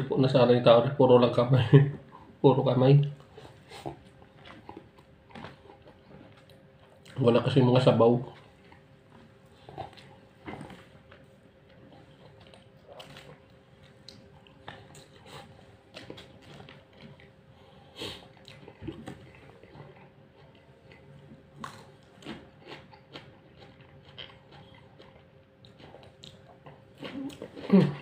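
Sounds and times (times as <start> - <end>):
faint steady hum: 0.0 - 28.0
chewing with clicks and smacks: 3.0 - 28.0.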